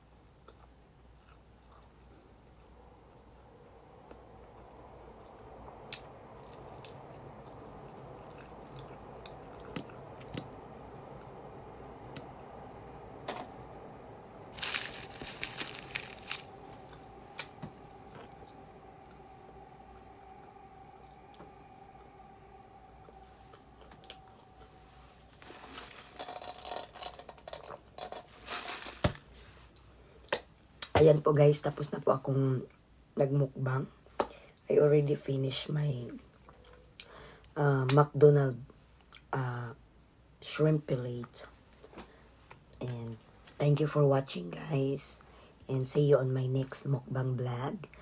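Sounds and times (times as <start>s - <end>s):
faint steady hum: 0.0s - 48.0s
person chewing food: 0.4s - 3.5s, 7.5s - 10.4s
food wrapping crinkling: 14.5s - 16.6s
crunchy clicks: 14.6s - 16.6s.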